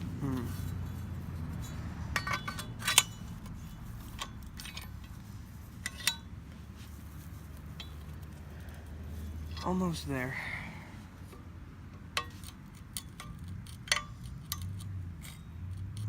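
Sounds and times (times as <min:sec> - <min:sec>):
steady low hum: 0:00.0 - 0:13.4
light metallic clinks and taps: 0:00.6 - 0:05.1, 0:07.6 - 0:08.4.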